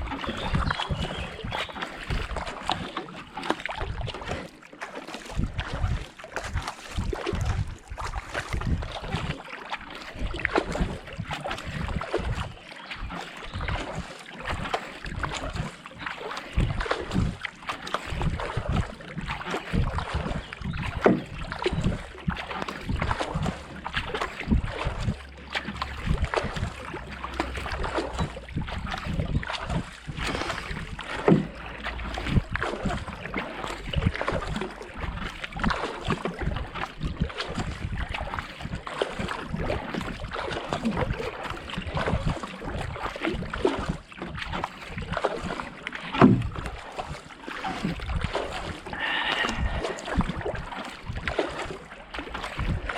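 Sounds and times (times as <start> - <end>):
wind buffeting microphone: 0.0 - 2.8, 5.3 - 9.3, 16.5 - 17.4, 18.1 - 44.5, 47.9 - 51.8
paddle strokes in water: 0.0 - 52.9.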